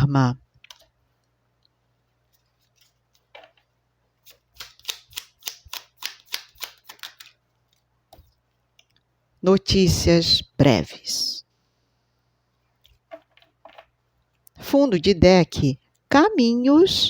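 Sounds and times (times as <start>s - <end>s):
playing cards clicking: 4.3s - 9.0s.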